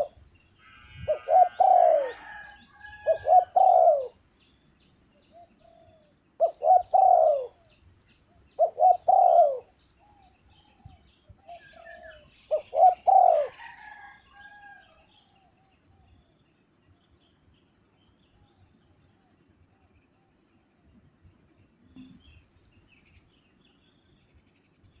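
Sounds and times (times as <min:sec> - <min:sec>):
dove cooing: 0:00.9 - 0:04.2, 0:05.3 - 0:07.8, 0:08.5 - 0:14.8.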